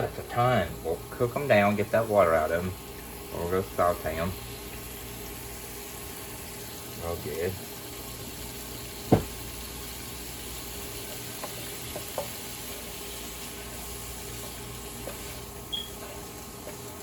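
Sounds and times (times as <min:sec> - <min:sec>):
onions sizzling in a frying pan: 0:00.0 - 0:17.0
knocks and taps on pan: 0:09.1 - 0:09.4.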